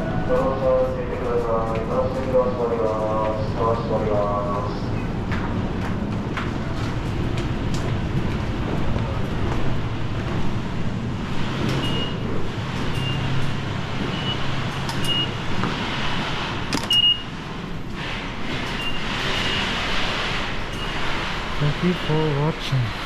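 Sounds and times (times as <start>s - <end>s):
electric train rumble: 0.0s - 23.0s
high train squeals: 11.6s - 17.4s, 18.0s - 22.4s.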